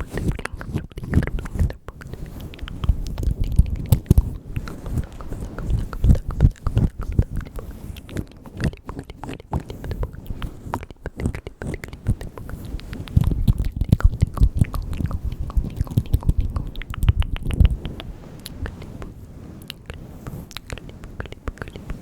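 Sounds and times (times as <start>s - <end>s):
wet mouth clicks and smacks: 0.0s - 22.0s
soft low thumps: 2.5s - 8.8s, 9.8s - 18.1s.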